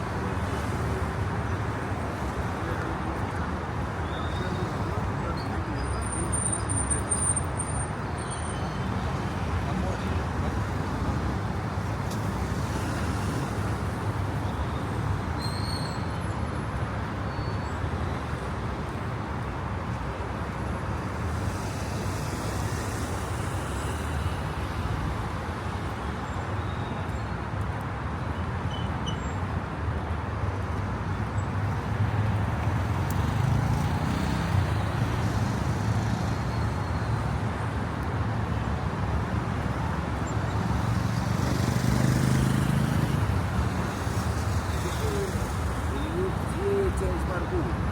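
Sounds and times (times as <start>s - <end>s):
cars passing: 18.5s - 26.6s, 29.6s - 47.9s.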